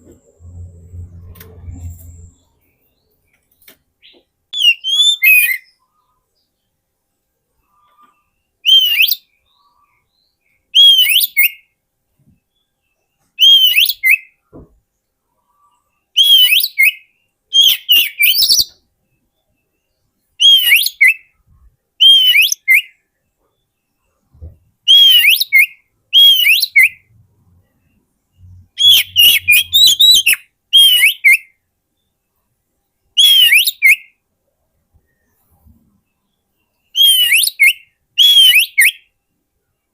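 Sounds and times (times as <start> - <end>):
bird whistled phrases: 4.6 - 5.7, 8.6 - 9.2, 10.8 - 11.6, 13.4 - 14.3, 16.2 - 18.7, 20.4 - 21.3, 22.0 - 22.9, 24.9 - 27.1, 28.7 - 31.5, 33.2 - 34.1, 37.0 - 39.1.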